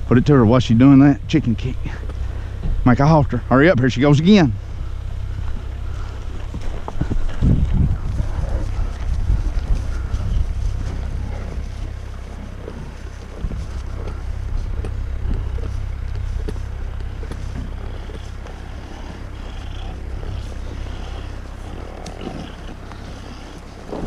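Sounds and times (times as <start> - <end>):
wind buffeting microphone: 2.6 - 24.0.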